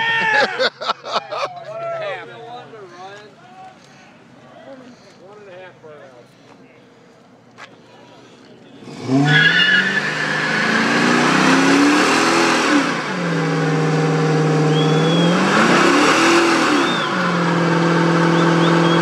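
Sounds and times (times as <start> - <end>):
tyres spinning and squealing: 8.1 - 12.6
car engine revving hard: 8.8 - 19.0.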